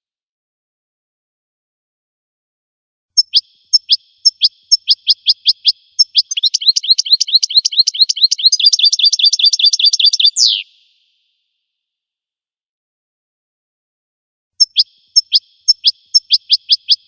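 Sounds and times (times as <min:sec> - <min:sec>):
finch singing: 0:03.2 - 0:11.0, 0:14.6 - 0:17.0.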